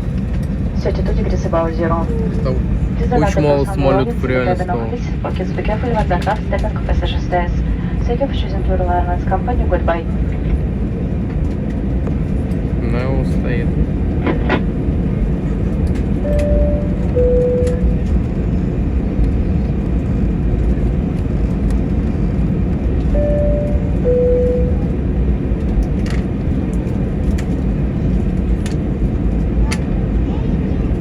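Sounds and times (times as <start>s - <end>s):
aircraft cabin rumble: 0.0s - 31.0s
two-tone cabin chime: 16.2s - 18.1s, 23.1s - 25.0s.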